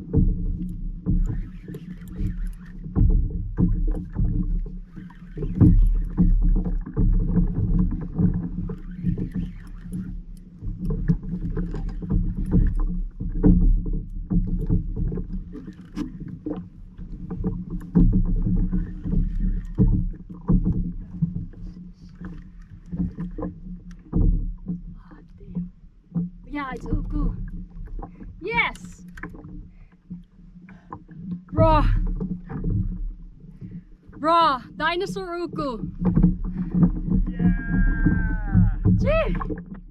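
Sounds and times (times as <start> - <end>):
water rumbling: 0.0 - 39.9
wind rumbling: 31.5 - 39.9.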